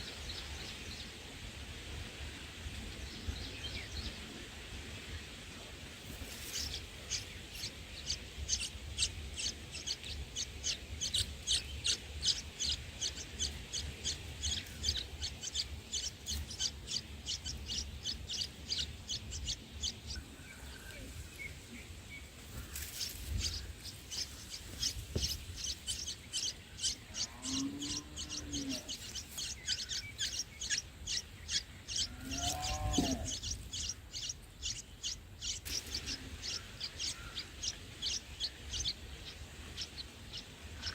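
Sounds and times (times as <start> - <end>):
bird chirping rapidly: 6.5 - 20.2, 22.2 - 40.9.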